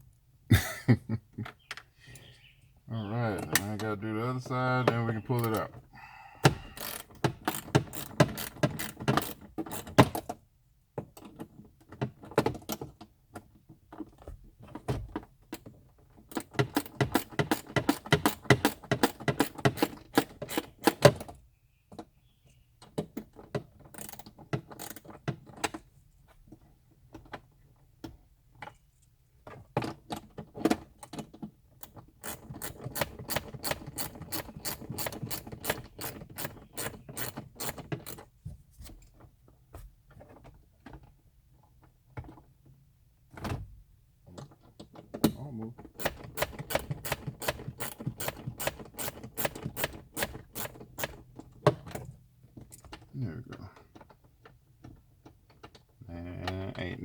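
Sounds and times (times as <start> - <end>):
ratchet wrench clicking: 6.4 - 9.9, 32.2 - 38.2, 46.0 - 51.2.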